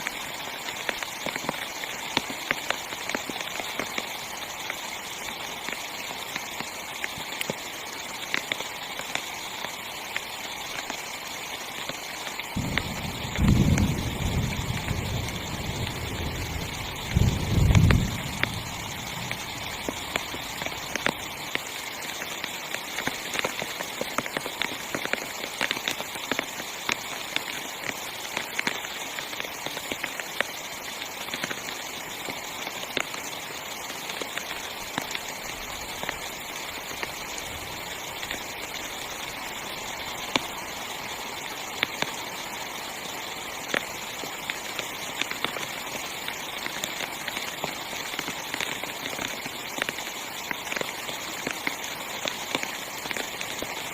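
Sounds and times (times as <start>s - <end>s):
heavy rain on tent fabric: 0.0s - 53.9s.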